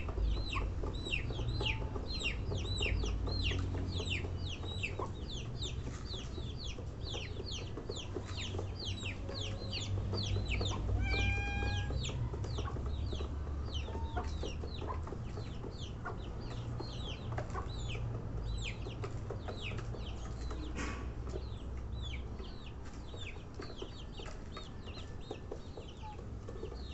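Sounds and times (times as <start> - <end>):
baby chicks peeping: 0.0 - 26.9.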